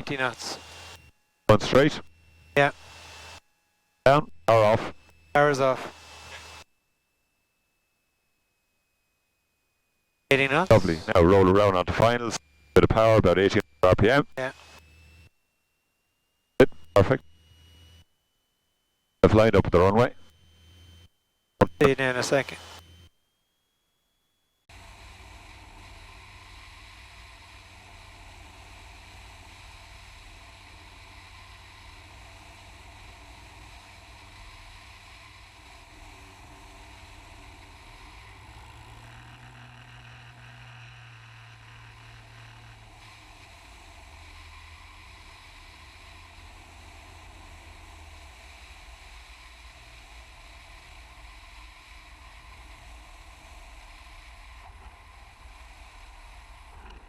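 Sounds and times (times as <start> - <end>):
airplane engine and propeller: 0.0 - 3.4, 24.7 - 57.0.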